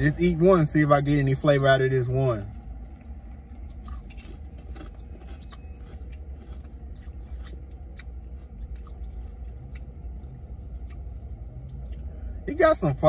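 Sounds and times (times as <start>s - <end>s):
steady low rumble: 0.0s - 13.0s
person chewing potato chip: 2.8s - 12.1s.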